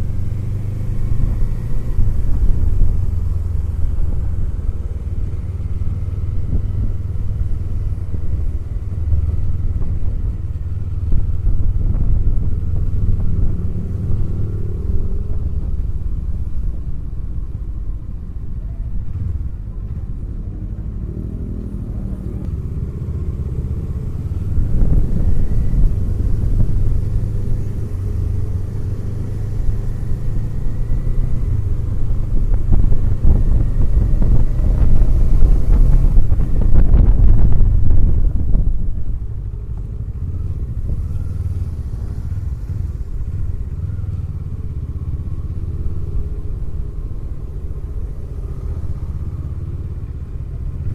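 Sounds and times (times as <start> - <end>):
motorcycle engine revving: 20.6 - 50.9.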